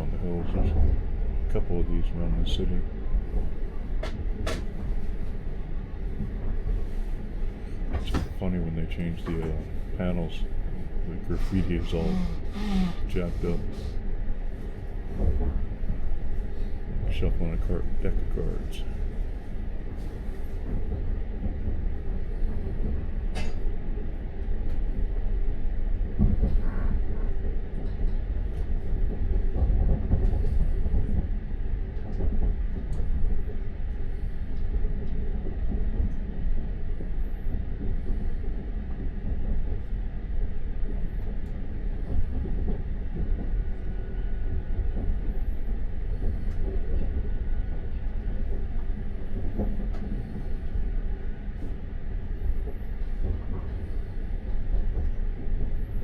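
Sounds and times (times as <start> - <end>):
train rumbling on track: 0.0 - 56.0
sharp clicks of train wheels: 4.0 - 4.9.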